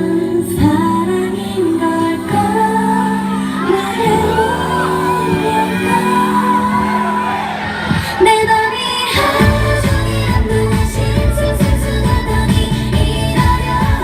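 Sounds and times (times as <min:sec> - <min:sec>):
loud backing music: 0:00.0 - 0:14.0
woman singing pop song: 0:00.0 - 0:14.0
audience shouting and whooping: 0:02.8 - 0:12.5.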